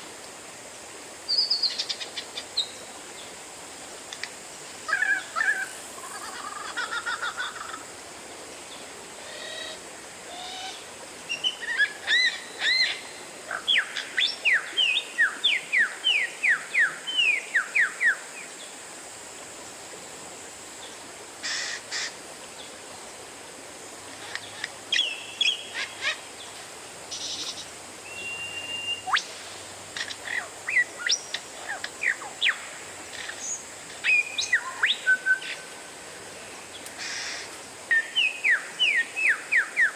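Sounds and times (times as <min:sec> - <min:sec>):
faint steady hiss: 0:00.0 - 0:39.9
bird singing: 0:27.1 - 0:29.3, 0:37.9 - 0:39.9.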